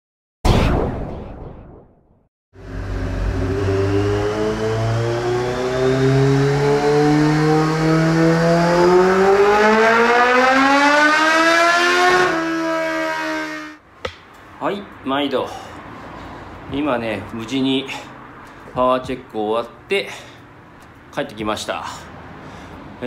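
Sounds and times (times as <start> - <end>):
motorcycle engine revving: 2.6 - 10.6, 11.8 - 13.8.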